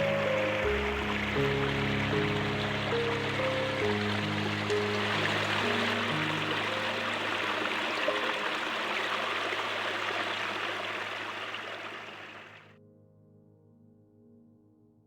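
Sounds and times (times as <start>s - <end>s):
soft ambient music: 0.0s - 9.7s
stream rushing: 0.0s - 12.7s.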